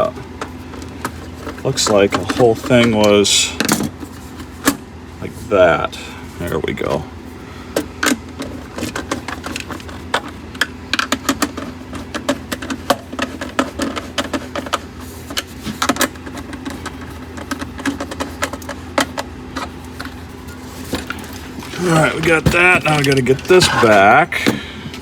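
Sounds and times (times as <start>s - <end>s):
faint steady hum: 0.0s - 25.0s
hand tools and metal parts clinking: 8.4s - 25.0s.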